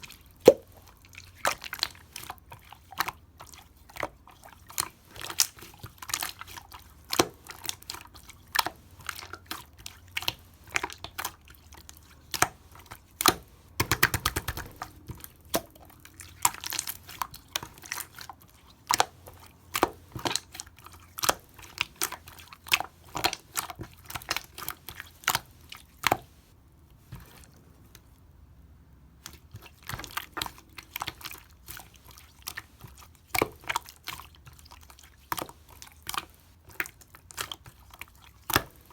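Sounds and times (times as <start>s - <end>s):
person chewing crunchy food: 29.3s - 38.9s.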